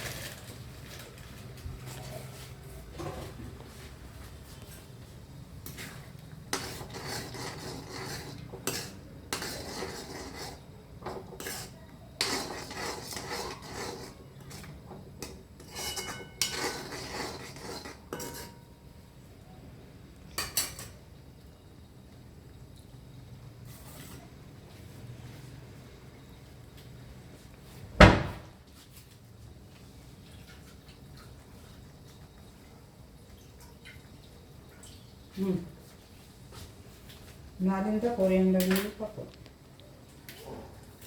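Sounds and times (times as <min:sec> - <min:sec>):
spoon stirring and scraping in a pot: 0:00.0 - 0:18.8, 0:20.3 - 0:21.1, 0:23.5 - 0:24.8.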